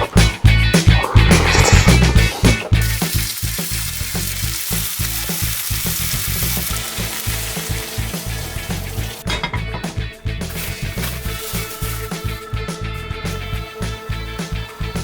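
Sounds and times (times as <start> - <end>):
background music: 0.0 - 15.0
food sizzling in a hot pan: 2.7 - 9.2, 10.5 - 12.4.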